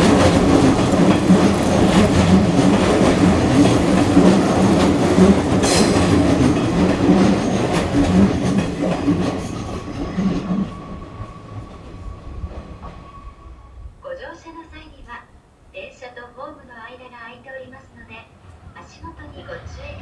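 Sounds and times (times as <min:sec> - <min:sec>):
train wheels clacking on rails: 0:00.0 - 0:13.3.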